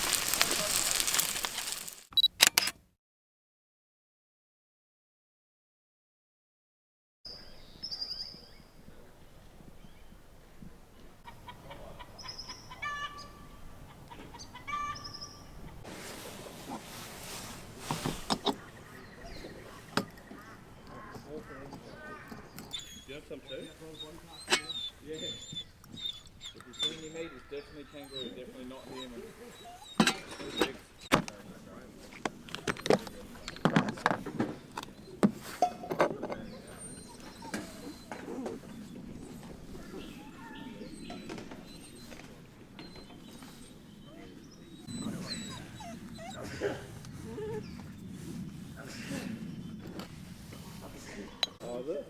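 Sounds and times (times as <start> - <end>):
bird calling: 0.0 - 2.1, 11.3 - 31.8, 36.3 - 48.3.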